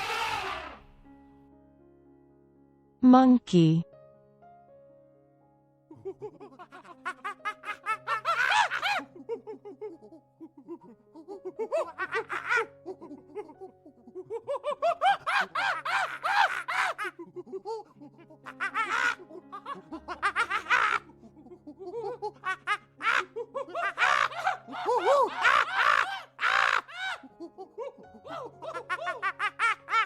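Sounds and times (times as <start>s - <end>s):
monkeys chattering: 23.9s - 27.2s.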